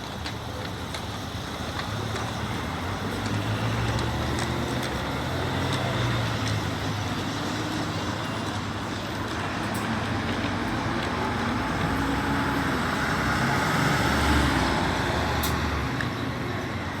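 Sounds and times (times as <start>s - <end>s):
road traffic noise: 0.0s - 17.0s
vehicle passing: 9.8s - 16.1s.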